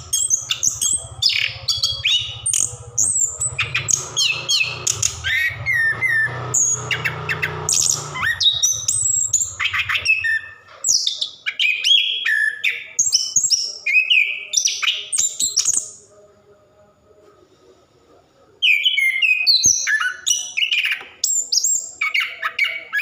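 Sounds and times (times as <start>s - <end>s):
thrush singing: 0.0s - 16.9s.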